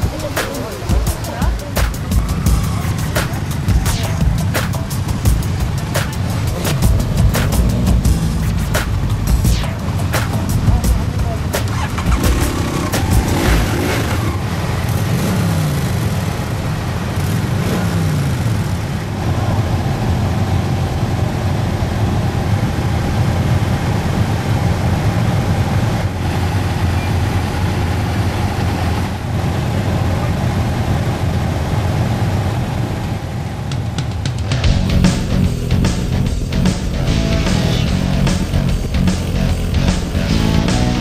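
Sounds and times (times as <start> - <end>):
motorcycle engine revving: 0.0 - 21.3, 31.2 - 41.0
motorcycle engines idling: 0.0 - 41.0.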